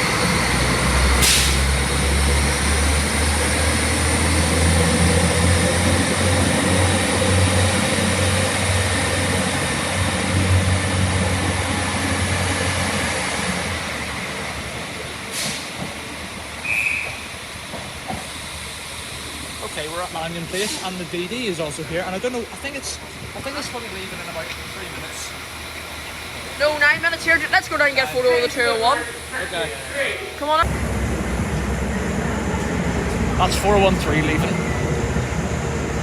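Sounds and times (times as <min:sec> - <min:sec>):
train engine drone: 0:00.0 - 0:36.0
train running noise: 0:00.0 - 0:36.0
high whine: 0:30.5 - 0:36.0.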